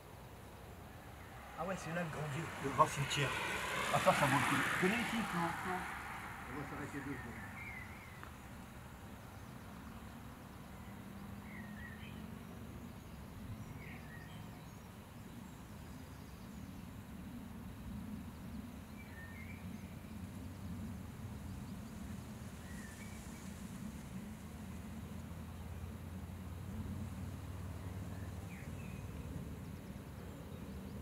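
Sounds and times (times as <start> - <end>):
low outdoor rumble: 0.7 - 9.2.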